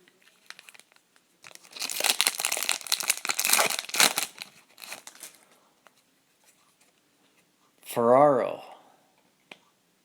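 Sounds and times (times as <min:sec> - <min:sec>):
plastic wrapper crinkling and tearing: 0:00.2 - 0:05.4
soft rustles: 0:04.4 - 0:07.5.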